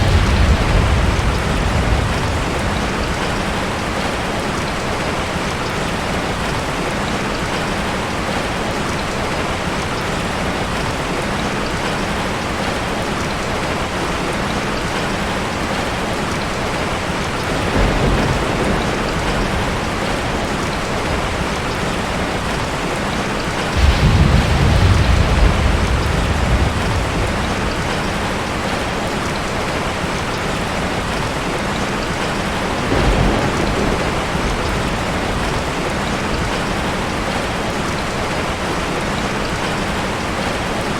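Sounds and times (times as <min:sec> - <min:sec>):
low thunder rumbles: 0:00.0 - 0:06.8, 0:15.5 - 0:31.2, 0:32.0 - 0:40.5
steady rain hissing: 0:00.0 - 0:40.9.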